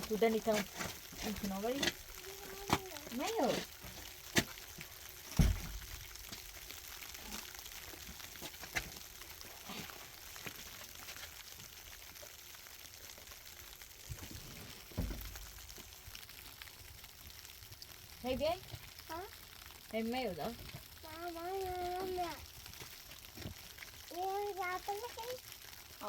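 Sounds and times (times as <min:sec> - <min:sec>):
food sizzling: 0:00.0 - 0:26.0
dull thumps: 0:05.3 - 0:06.0, 0:14.8 - 0:15.7.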